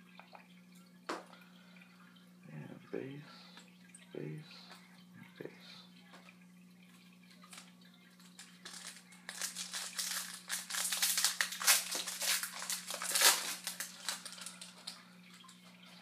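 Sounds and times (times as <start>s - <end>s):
steady low hum: 0.0s - 16.0s
foil wrapper crinkling and tearing: 7.4s - 15.5s.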